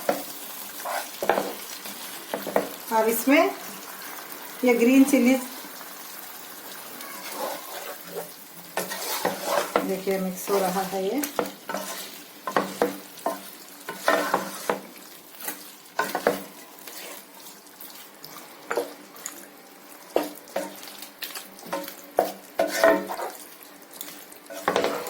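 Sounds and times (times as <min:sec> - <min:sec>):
spoon scraping and knocking pan: 0:00.0 - 0:02.8, 0:07.2 - 0:17.3, 0:18.6 - 0:19.0, 0:20.1 - 0:20.9, 0:21.6 - 0:23.4, 0:24.5 - 0:25.0
food sizzling: 0:00.0 - 0:25.0.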